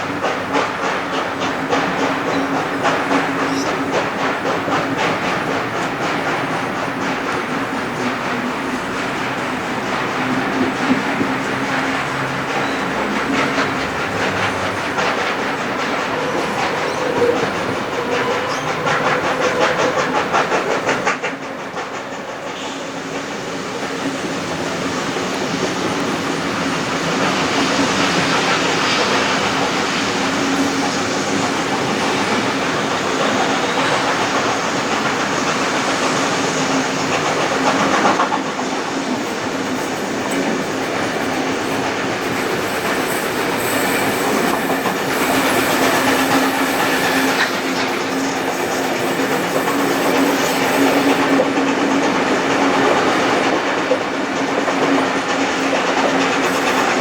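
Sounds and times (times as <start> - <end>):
train rolling rumble: 0.0 - 57.0
train wheels clacking on rails: 0.0 - 57.0.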